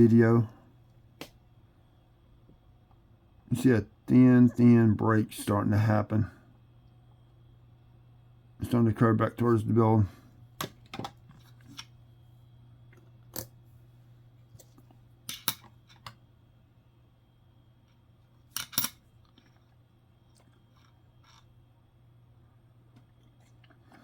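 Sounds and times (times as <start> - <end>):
steady low hum: 0.0 - 24.0
coins clicking and tapping: 18.6 - 19.0.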